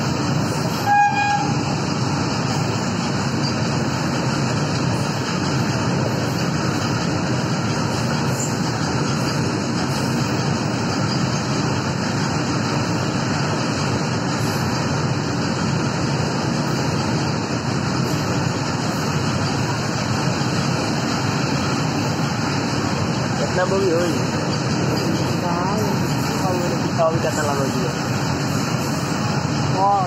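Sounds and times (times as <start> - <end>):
train wheels rumbling on rails: 0.0 - 30.0
train horn toot: 0.7 - 1.6.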